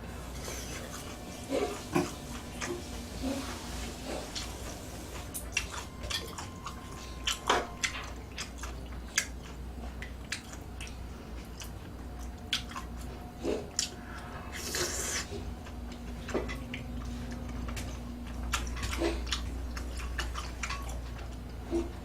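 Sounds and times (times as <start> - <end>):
person chewing food: 0.3 - 22.0
hissy slurp: 13.4 - 15.6.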